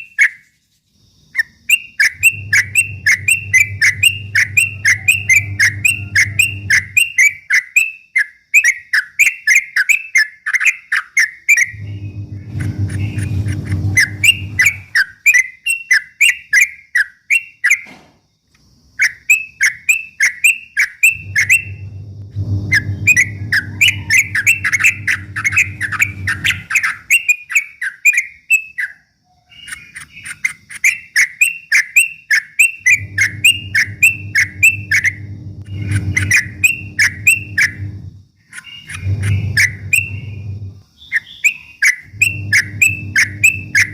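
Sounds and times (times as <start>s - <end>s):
bird chattering: 1.4s - 17.8s, 19.0s - 22.0s, 22.7s - 43.9s
low hum: 2.1s - 7.2s, 11.7s - 14.9s, 21.1s - 26.8s, 32.8s - 38.3s, 38.9s - 40.9s, 42.0s - 43.9s.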